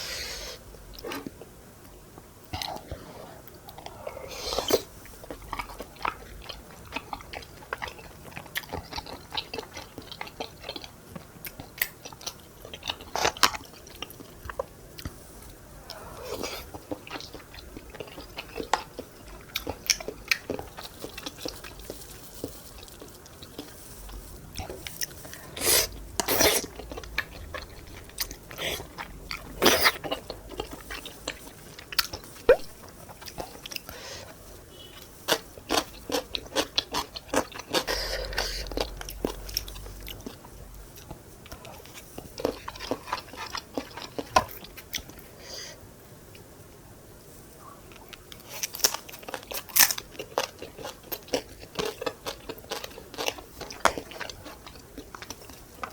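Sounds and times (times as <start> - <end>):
person chewing food: 2.5 - 45.4, 47.9 - 55.9.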